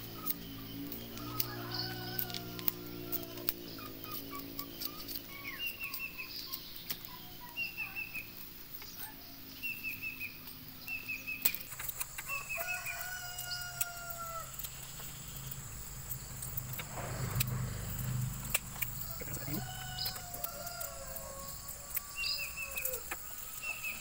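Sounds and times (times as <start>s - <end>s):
small birds chirping: 0.0s - 24.0s
rooster crowing: 1.0s - 3.5s, 12.2s - 14.6s, 16.3s - 24.0s.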